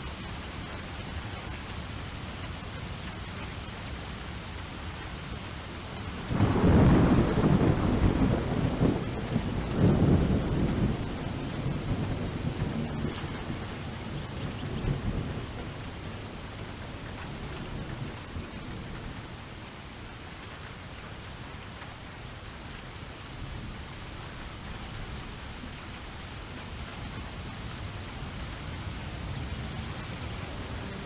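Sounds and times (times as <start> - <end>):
steady rain falling: 0.0 - 31.0
low rolling thunder: 6.1 - 19.3.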